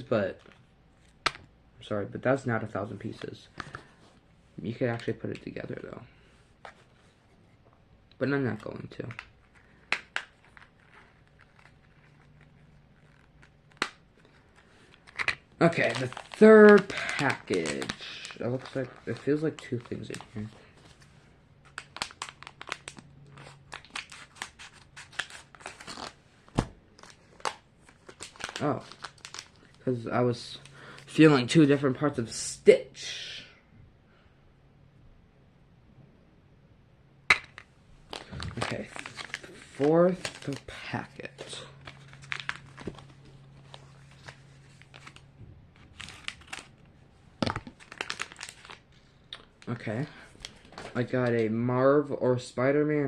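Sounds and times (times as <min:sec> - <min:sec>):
plastic packet crinkling and tearing: 0:09.0 - 0:20.6, 0:21.6 - 0:26.2, 0:26.9 - 0:31.2, 0:38.1 - 0:49.8.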